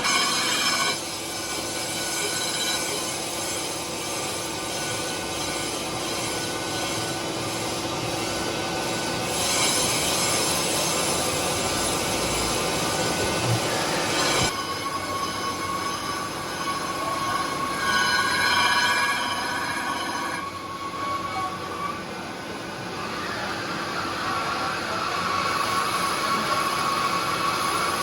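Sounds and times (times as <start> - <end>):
factory machinery squealing: 0.0 - 28.0
high ringing tones: 14.1 - 21.5.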